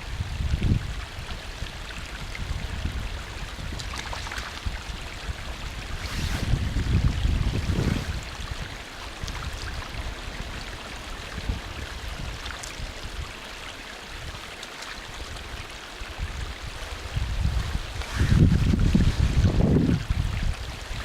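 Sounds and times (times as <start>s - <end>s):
wind buffeting microphone: 0.0s - 13.5s, 15.1s - 21.0s
small stream running: 0.0s - 21.0s.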